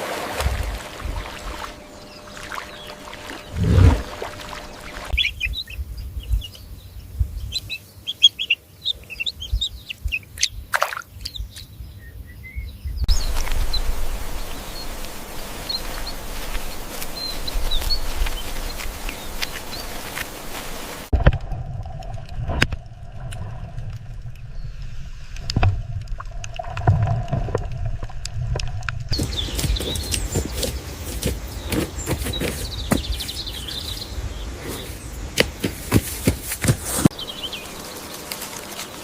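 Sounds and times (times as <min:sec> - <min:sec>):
small birds chirping: 0:01.2 - 0:21.1, 0:29.1 - 0:39.0
steady hiss: 0:13.1 - 0:21.1
low rumble: 0:21.1 - 0:29.2.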